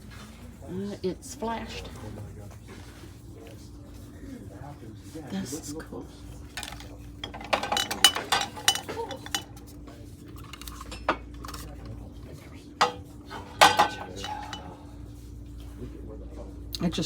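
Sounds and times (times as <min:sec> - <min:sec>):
glass and china dishes clinking: 0:06.6 - 0:09.6, 0:12.8 - 0:14.8.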